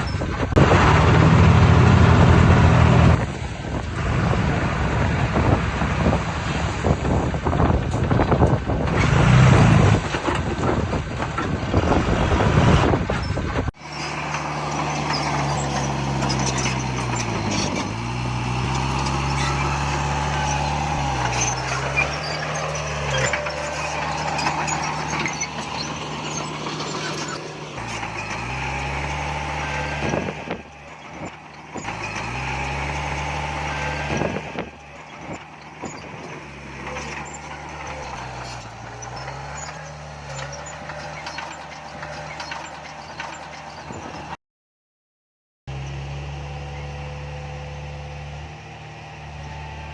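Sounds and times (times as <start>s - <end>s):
wind buffeting microphone: 0.0s - 13.7s
heavy diesel engine under load: 0.0s - 44.4s, 45.7s - 49.9s.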